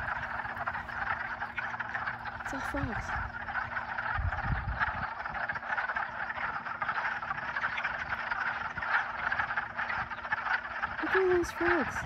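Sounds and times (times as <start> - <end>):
chorus of frogs croaking: 0.0 - 12.0.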